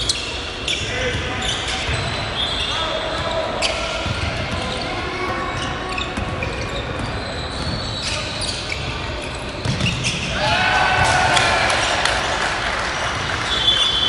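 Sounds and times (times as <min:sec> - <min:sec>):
voices in echoing hall: 0:00.0 - 0:14.0
basketball bouncing on gym floor: 0:04.0 - 0:04.9, 0:05.6 - 0:10.3.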